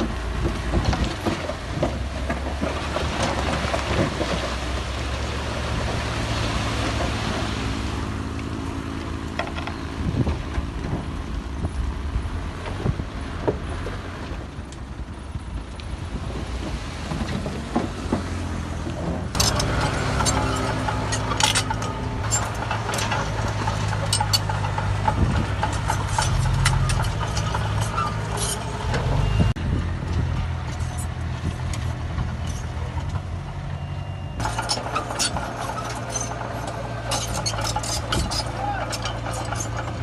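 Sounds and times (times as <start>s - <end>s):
knocks and clatter: 0.0s - 7.6s, 8.4s - 11.2s, 16.6s - 29.3s, 34.4s - 40.0s
diesel machinery running: 0.0s - 16.8s, 17.4s - 40.0s
rock clinking on metal: 19.3s - 28.9s, 30.6s - 33.2s, 34.4s - 40.0s.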